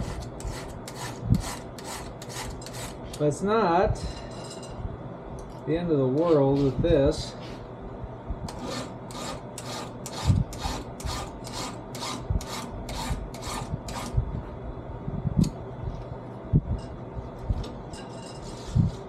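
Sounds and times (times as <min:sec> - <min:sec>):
hand file rasping on chain: 0:00.0 - 0:03.0, 0:08.5 - 0:14.1.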